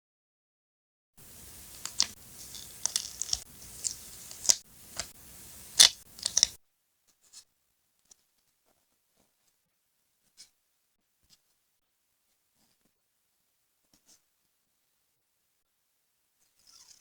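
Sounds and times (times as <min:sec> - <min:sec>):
paper rustling: 0:01.2 - 0:06.6
scissors snipping paper: 0:01.2 - 0:06.6.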